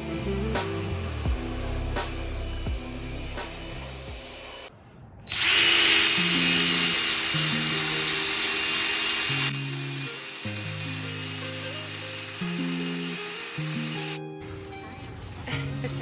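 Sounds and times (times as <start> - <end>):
background music: 0.0 - 4.7, 6.0 - 16.0
power tool whirring: 5.3 - 16.0.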